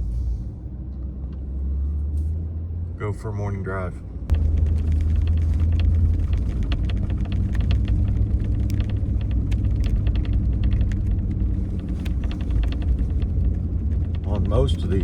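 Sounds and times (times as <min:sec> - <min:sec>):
truck engine and tyres rumbling: 0:00.0 - 0:15.0
sharp clicks and crackles: 0:04.3 - 0:15.0.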